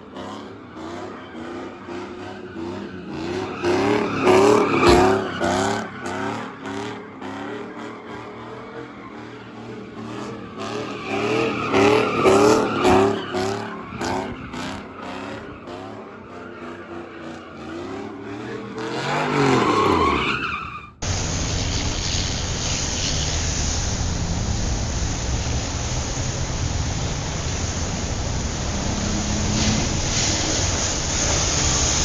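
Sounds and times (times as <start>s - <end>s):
exhaust crackles: 21.0s - 32.0s
steady rushing rumble: 21.0s - 32.0s
truck exhaust revving: 21.0s - 32.0s.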